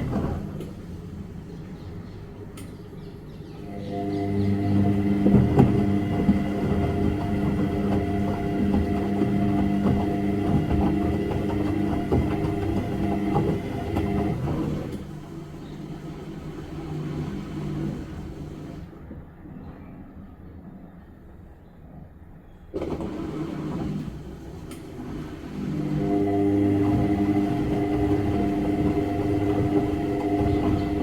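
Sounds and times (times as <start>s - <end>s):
washing machine drum humming: 0.0s - 2.8s, 3.6s - 18.9s, 22.8s - 31.0s
washing machine knocks: 4.2s - 14.4s, 26.9s - 31.0s.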